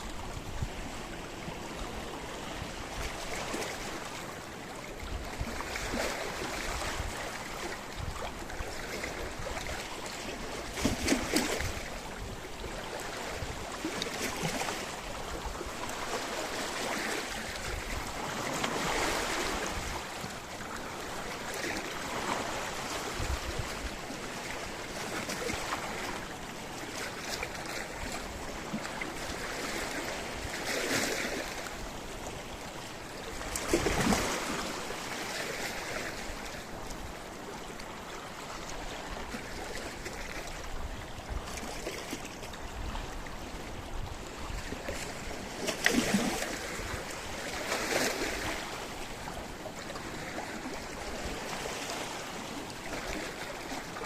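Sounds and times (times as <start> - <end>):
wave splashes: 0.0 - 54.0
waves washing against rocks: 13.0 - 31.8, 33.2 - 36.8, 44.5 - 54.0.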